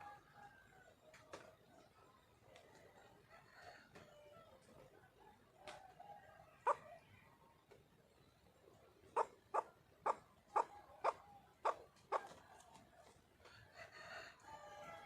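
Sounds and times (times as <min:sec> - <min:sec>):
junglefowl hen calling: 0:06.6 - 0:07.0, 0:09.1 - 0:12.7.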